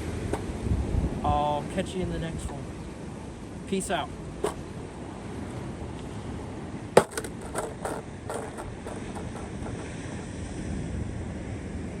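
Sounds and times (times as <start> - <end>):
wind noise rumble: 0.0 - 12.0
light knocks and clicks: 7.0 - 10.0.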